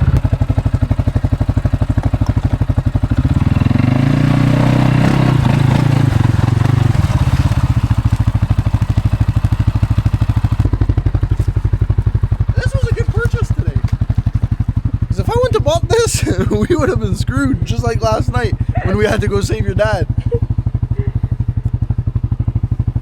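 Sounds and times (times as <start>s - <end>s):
atv engine running and revving: 0.0s - 23.0s.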